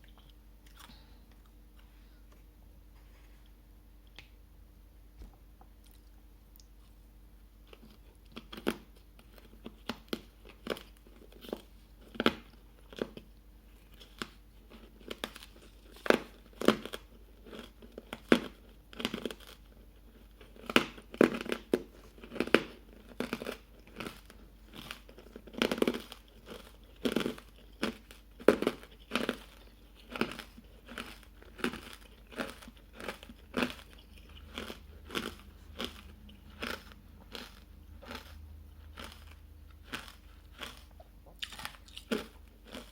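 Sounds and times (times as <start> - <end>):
chewing crunchy ice cubes: 7.6 - 42.9.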